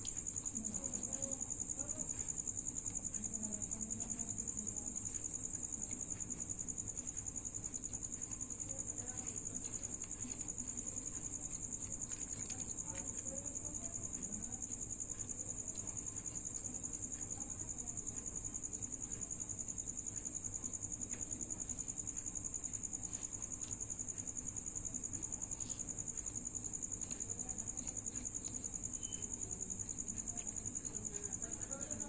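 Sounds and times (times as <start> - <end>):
insect trilling: 0.0 - 20.8, 21.6 - 32.0.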